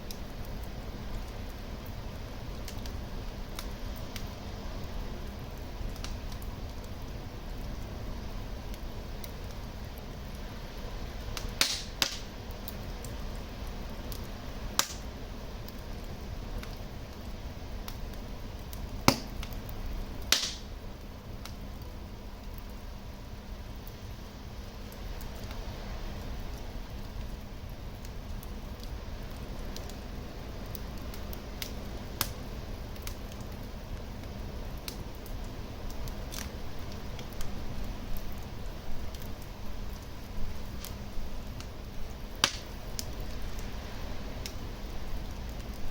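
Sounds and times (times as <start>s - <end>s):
sharp pops of fire: 0.0s - 7.8s, 11.2s - 16.0s, 16.6s - 21.9s, 30.7s - 43.8s
low rumble of flame: 0.0s - 45.9s
wood fire crackling: 0.0s - 45.9s.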